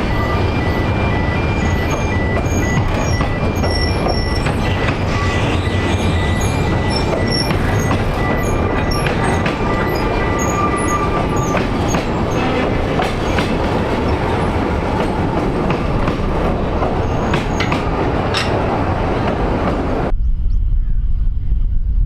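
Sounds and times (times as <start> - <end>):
wheels squealing on rails: 0.0 - 19.0
train wheels rumbling on rail: 0.0 - 20.1
clicks of train wheels: 6.7 - 14.4, 15.0 - 19.8.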